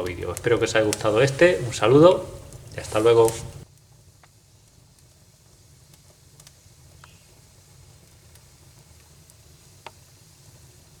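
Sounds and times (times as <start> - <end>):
wood fire popping: 0.0 - 11.0.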